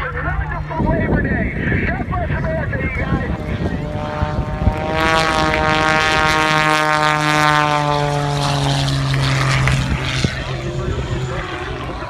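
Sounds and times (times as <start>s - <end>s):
propeller plane engine passing: 0.0s - 12.0s.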